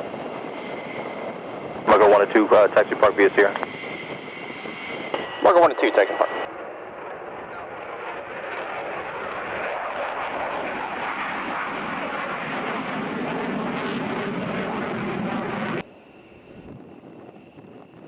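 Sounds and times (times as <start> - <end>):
fighter jet engine roar: 0.0 - 18.0.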